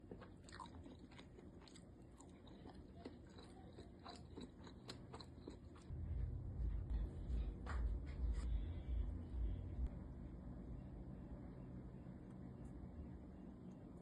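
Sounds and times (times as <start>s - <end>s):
close chewing with mouth clicks: 0.0s - 5.9s
low rumble: 5.9s - 14.0s.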